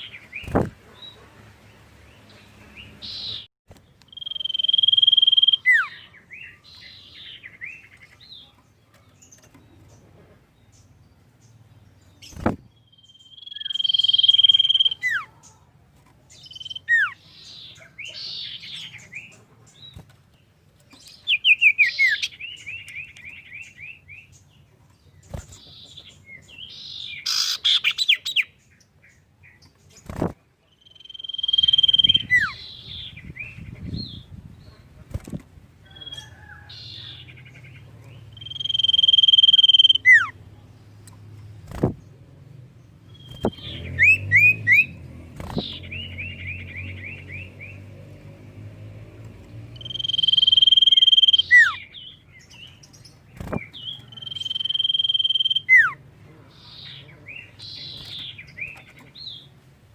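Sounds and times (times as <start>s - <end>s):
bird trills and chatter: 2.1s - 42.2s, 43.0s - 47.8s, 49.8s - 59.6s
bird whistling song: 4.1s - 7.9s, 12.3s - 15.3s, 16.4s - 19.0s, 21.2s - 24.3s, 25.7s - 28.5s, 30.8s - 34.2s, 38.3s - 40.4s, 43.1s - 47.8s, 49.8s - 52.8s, 53.5s - 56.0s.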